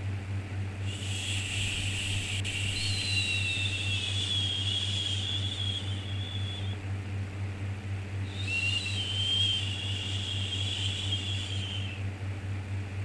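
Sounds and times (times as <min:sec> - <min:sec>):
low hum: 0:00.8 - 0:12.0.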